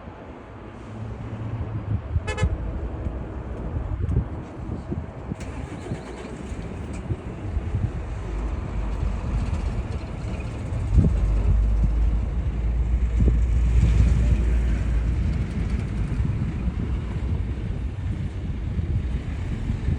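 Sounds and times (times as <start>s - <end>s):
wind buffeting microphone: 1.1s - 19.9s
jet airliner rumbling: 1.8s - 19.9s.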